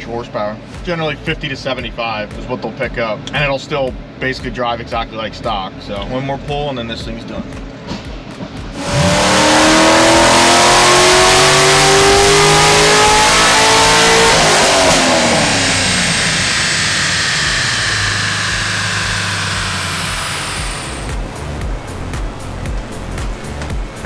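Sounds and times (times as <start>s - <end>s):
car engine revving on dyno: 8.8s - 24.0s
dyno rollers coasting: 8.8s - 24.0s.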